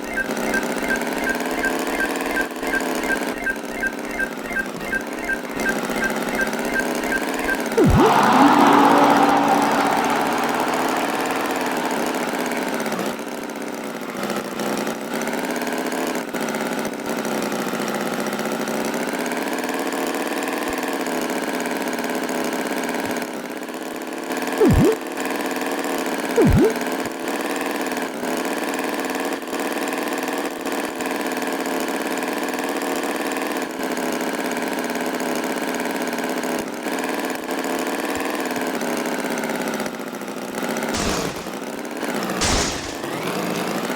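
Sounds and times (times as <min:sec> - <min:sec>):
loud swooping sounds: 0:02.6 - 0:13.1, 0:24.6 - 0:25.0, 0:26.4 - 0:26.8
tractor engine running: 0:41.0 - 0:43.9.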